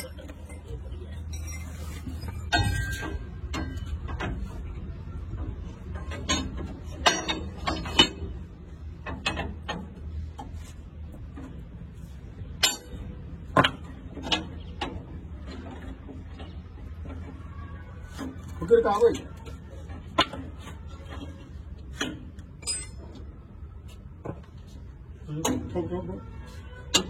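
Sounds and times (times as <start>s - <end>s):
hand tools clinking on steel: 22.5s - 23.2s.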